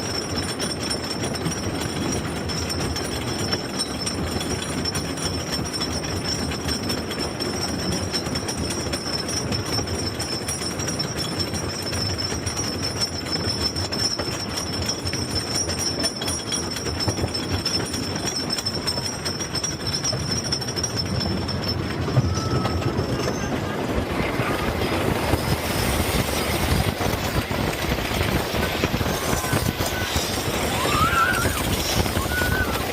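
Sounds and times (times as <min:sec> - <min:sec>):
roller coaster rumbling on track: 0:00.0 - 0:32.9.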